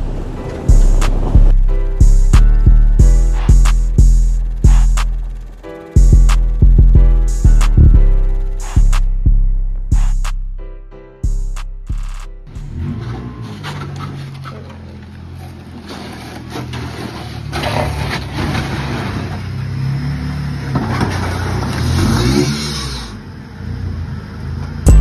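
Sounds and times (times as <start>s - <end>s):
car engine running: 0.0s - 10.6s, 11.2s - 16.4s.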